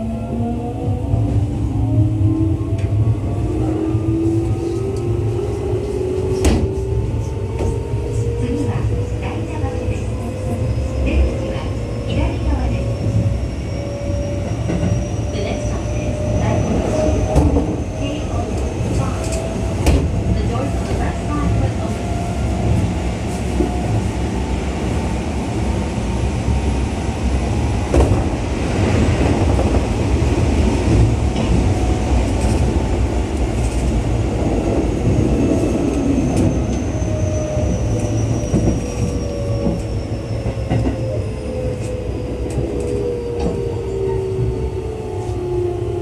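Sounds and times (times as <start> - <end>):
train wheels rumbling on rail: 0.0 - 46.0
rail joint clicks: 37.6 - 44.6.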